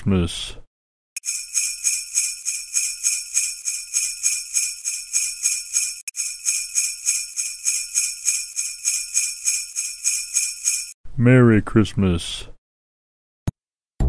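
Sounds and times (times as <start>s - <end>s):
sleigh bells shaken: 1.2s - 11.0s.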